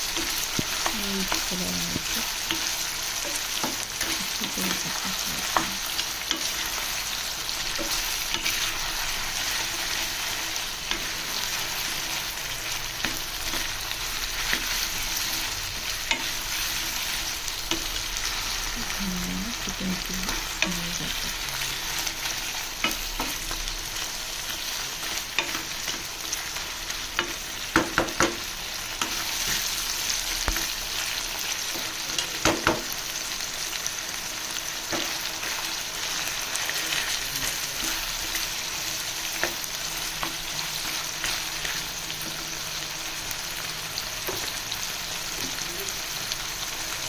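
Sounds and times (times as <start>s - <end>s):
chicken frying in hot oil: 0.0s - 47.0s
spoon knocking on pan: 27.2s - 28.5s, 32.4s - 32.9s.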